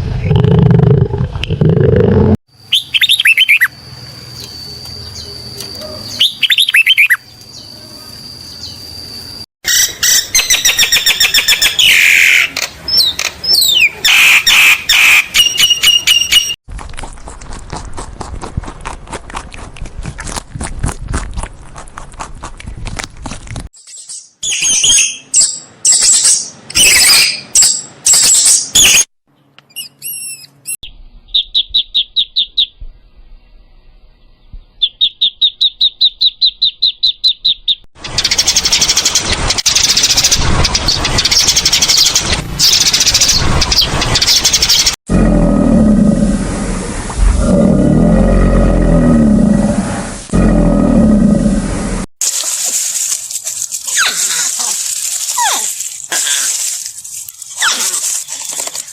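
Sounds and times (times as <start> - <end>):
birds chirping and whistling: 2.7 - 7.8, 9.7 - 16.6, 23.8 - 32.9, 34.3 - 45.0.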